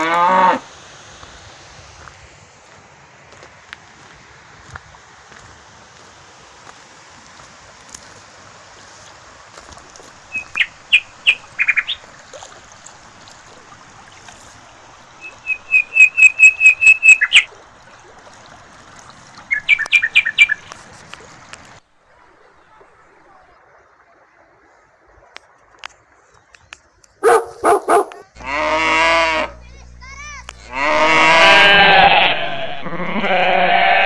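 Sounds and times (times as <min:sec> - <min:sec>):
faint steady hiss: 0:00.0 - 0:32.9
bird calling rapid sharp notes: 0:10.3 - 0:12.0, 0:15.2 - 0:17.5.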